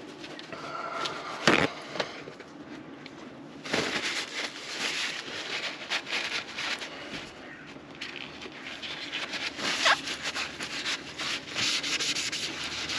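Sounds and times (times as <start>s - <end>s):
hands rustling and rubbing: 8.0s - 12.9s.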